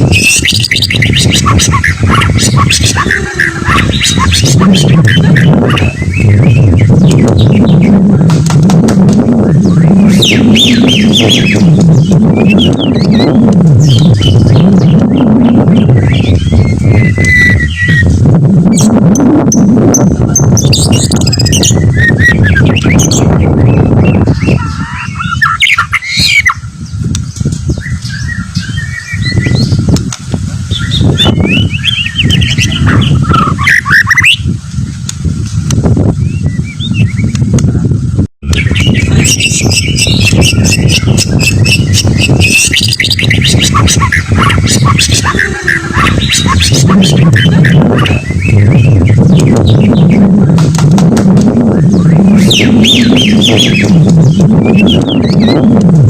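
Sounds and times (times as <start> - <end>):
low background rumble: 0.0 - 56.0
bird singing whistled phrases: 0.1 - 7.9, 9.6 - 18.1, 20.6 - 26.6, 30.7 - 34.4, 38.6 - 50.2.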